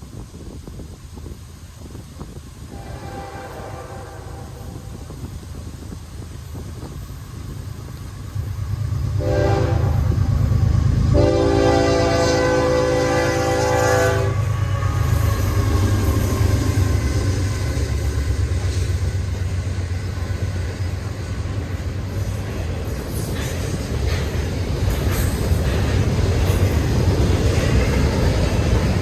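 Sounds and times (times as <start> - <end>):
train rumbling past: 0.0 - 29.0
locomotive air horn: 2.7 - 5.0, 9.1 - 10.3, 11.0 - 16.8.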